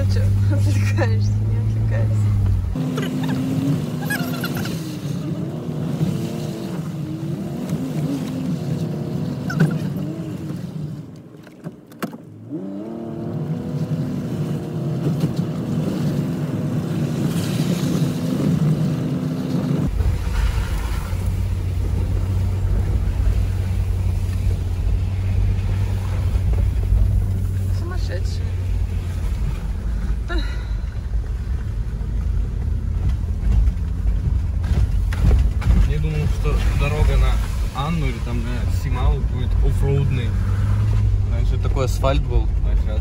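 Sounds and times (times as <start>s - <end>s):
car engine inside cabin: 0.0s - 43.0s
low rumble: 19.8s - 43.0s.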